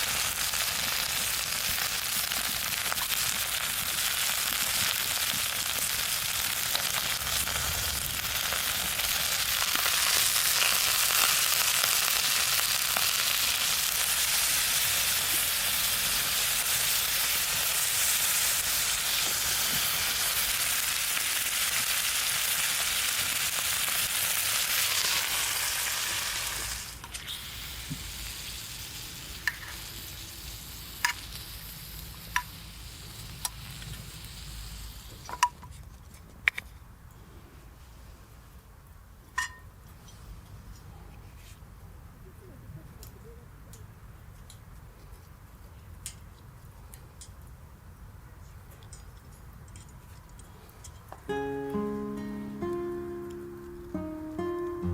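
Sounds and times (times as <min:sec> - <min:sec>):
meat sizzling in a pan: 0:00.0 - 0:35.3
sharp pops and crackles: 0:00.0 - 0:36.8.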